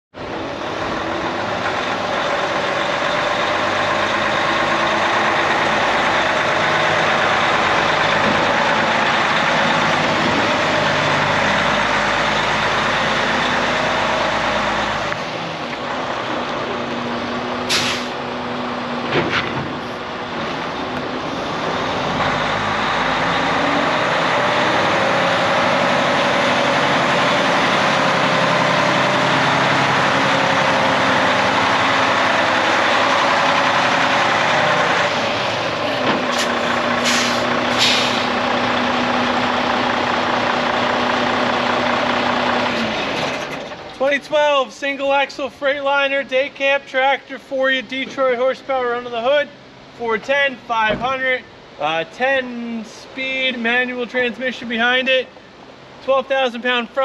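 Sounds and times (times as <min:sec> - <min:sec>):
diesel truck engine running: 0:00.2 - 0:46.6
air hisses: 0:17.7 - 0:18.2, 0:36.3 - 0:38.4.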